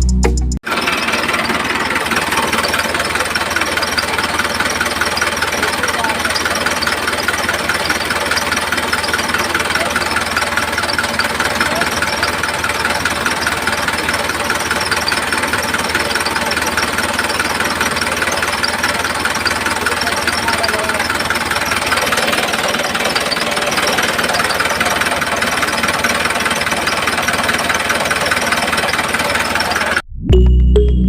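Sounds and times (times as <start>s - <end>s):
music: 0.0s - 0.6s, 30.2s - 31.0s.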